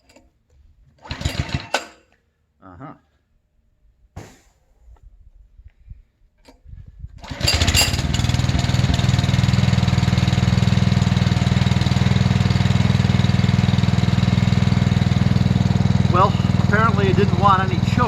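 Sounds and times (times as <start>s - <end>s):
small gasoline engine starting: 1.0s - 2.2s, 7.2s - 18.0s.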